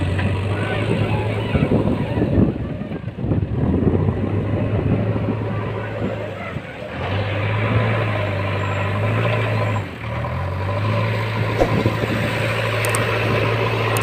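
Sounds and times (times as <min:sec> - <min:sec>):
short knocks: 0:11.6 - 0:12.2.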